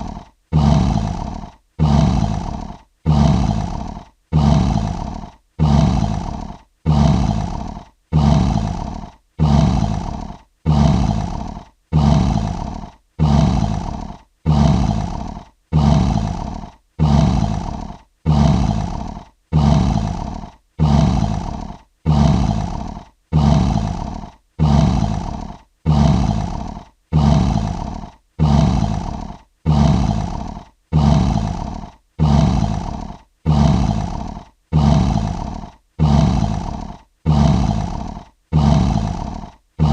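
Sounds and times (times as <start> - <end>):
lion roar: 0.0 - 39.9.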